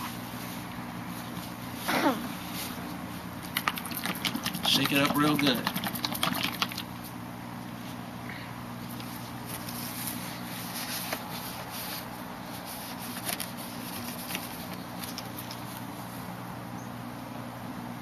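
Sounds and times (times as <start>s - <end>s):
steady low hum: 0.0s - 18.0s
rag rubbing on plastic: 3.5s - 7.1s.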